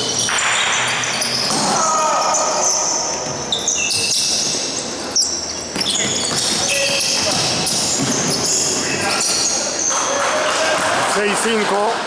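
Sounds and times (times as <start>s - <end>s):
sneakers squeaking on floor: 0.0s - 11.0s
voices of players and spectators: 0.2s - 12.0s
basketball bouncing: 5.7s - 8.6s.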